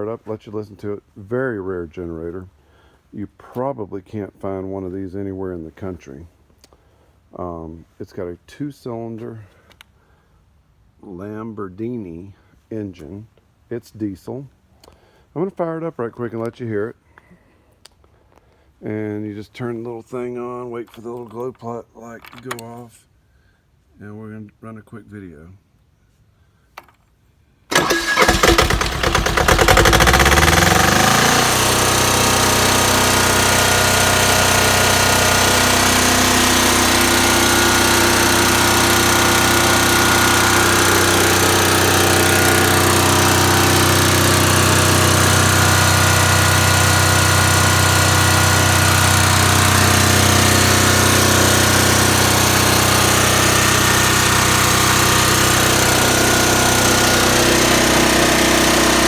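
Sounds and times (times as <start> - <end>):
diesel generator running: 27.7 - 59.0
electric starter cranking: 27.7 - 59.0.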